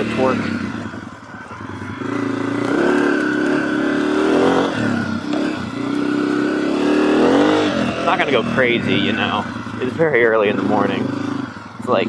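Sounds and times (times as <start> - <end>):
dirt bike engine accelerating: 0.0 - 12.0.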